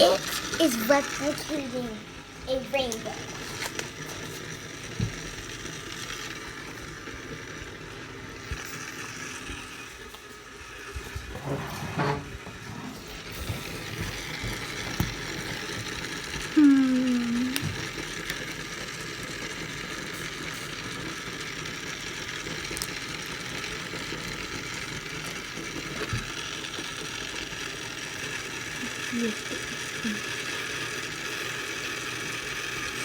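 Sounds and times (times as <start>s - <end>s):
egg spinner clicking rattle: 0.0s - 11.2s, 13.6s - 33.0s
person saying ooh: 16.6s - 17.6s.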